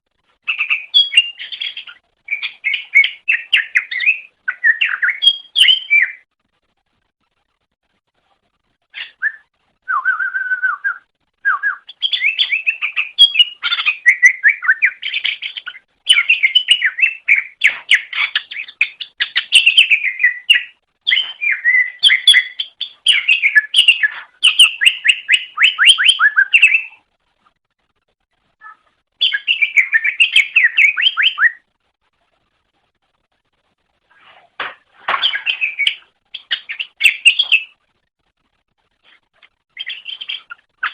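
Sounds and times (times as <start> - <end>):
bird chattering song: 0.4 - 6.2, 11.5 - 27.0, 28.6 - 31.7, 35.1 - 37.8, 39.7 - 40.9.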